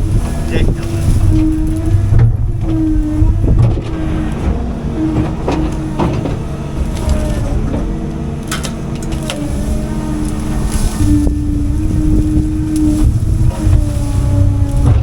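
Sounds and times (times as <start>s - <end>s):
excavator diesel engine running: 0.0s - 15.0s
wood cracking: 0.0s - 15.0s.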